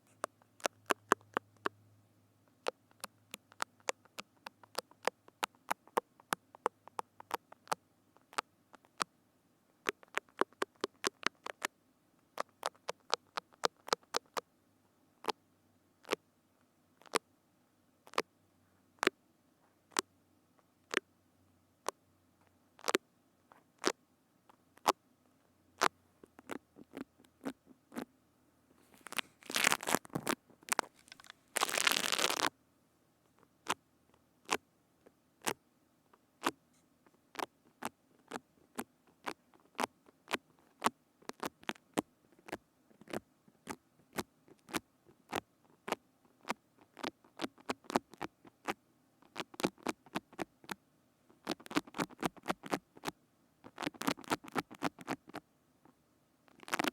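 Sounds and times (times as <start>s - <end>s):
crackling rustle: 28.8s - 32.5s.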